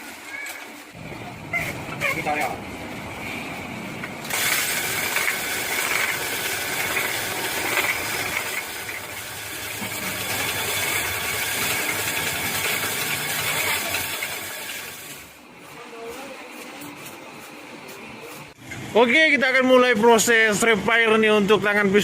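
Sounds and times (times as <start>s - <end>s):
machine rattling: 4.0s - 15.3s.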